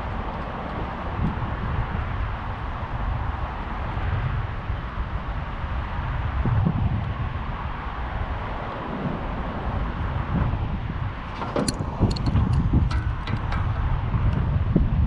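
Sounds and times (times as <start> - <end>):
wind rumbling on microphone: 0.0 - 15.0
light clicks and taps: 11.4 - 14.5.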